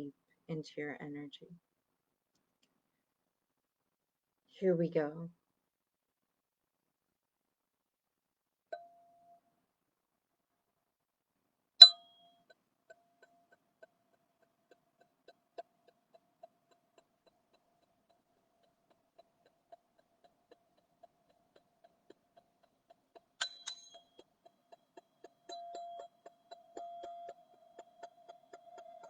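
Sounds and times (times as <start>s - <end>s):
ringing instrument strikes: 11.8s - 12.2s.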